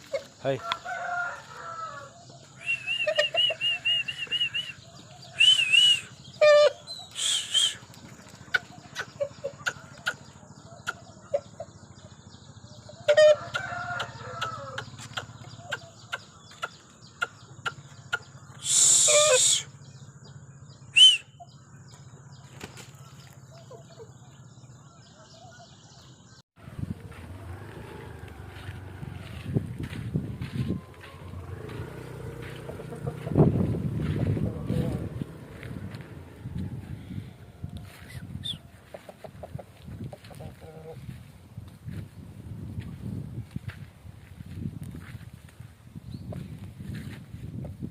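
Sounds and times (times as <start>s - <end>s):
chickens clucking and calling: 0.0s - 20.4s, 21.0s - 42.1s
chicks chirping: 2.2s - 13.1s, 26.8s - 36.8s
wings flapping: 22.4s - 23.3s.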